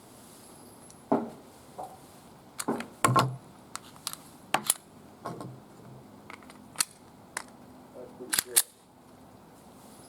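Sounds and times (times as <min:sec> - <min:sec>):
sharp metallic clicks: 0:08.3 - 0:08.8.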